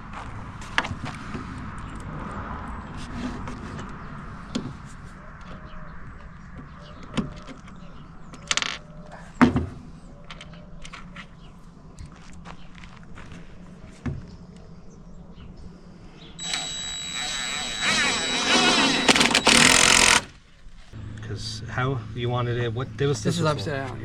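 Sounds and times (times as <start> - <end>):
short rasping burst: 16.4 - 20.4.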